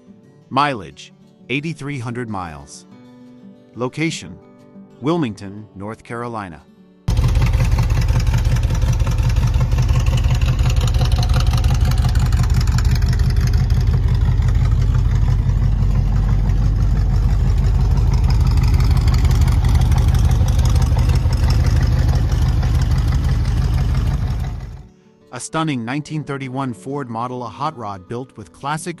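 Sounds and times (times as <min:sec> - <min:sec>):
car engine idling: 0:07.1 - 0:24.9.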